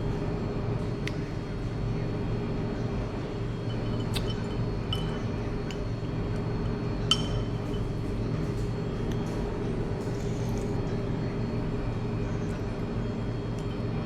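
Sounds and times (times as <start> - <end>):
cutlery clinking on dishes: 3.6 - 6.0, 7.1 - 8.0.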